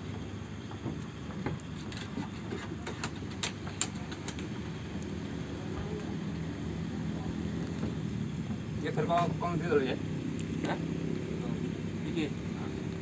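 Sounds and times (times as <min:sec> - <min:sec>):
low steady rumble: 0:00.0 - 0:13.0
sharp clicks and light taps: 0:01.0 - 0:05.2.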